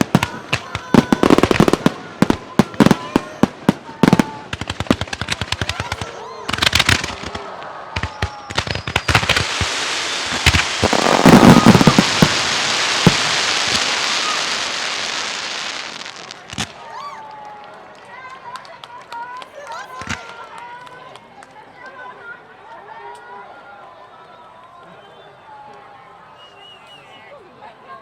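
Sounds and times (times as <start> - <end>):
hissing crackle: 0.0 - 17.0
firework bangs and crackles: 0.0 - 20.7
heavy firework boom: 6.5 - 16.8.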